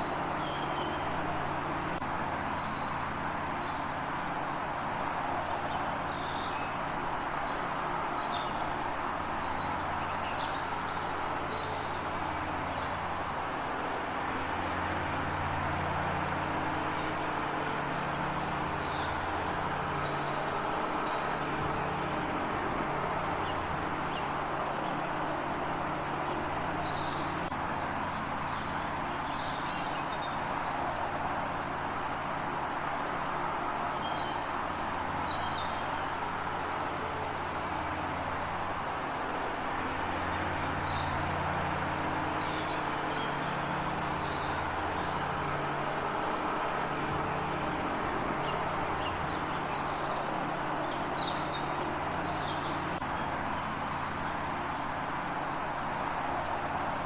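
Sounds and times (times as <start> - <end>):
small birds chirping: 48.4 - 53.0.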